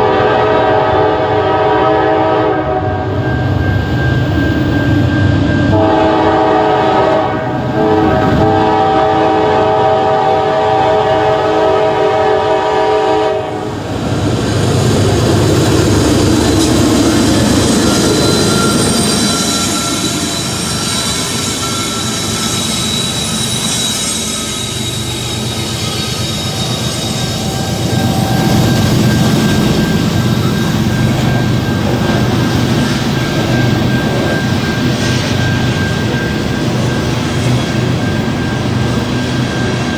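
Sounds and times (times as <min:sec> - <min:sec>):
train horn blast: 0:00.0 - 0:03.2, 0:05.7 - 0:13.8
train wheels rumbling on rails: 0:00.0 - 0:39.9
high wheel whines: 0:12.5 - 0:39.9.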